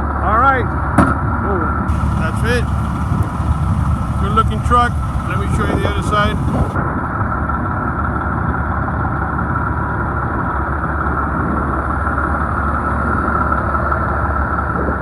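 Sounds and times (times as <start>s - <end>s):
diesel engine idling: 1.9s - 6.8s.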